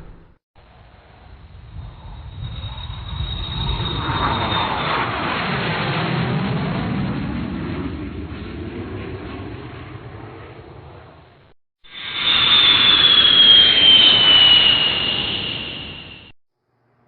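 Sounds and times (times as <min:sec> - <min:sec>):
aircraft passing by: 0:01.0 - 0:16.3
high whine: 0:11.8 - 0:16.4.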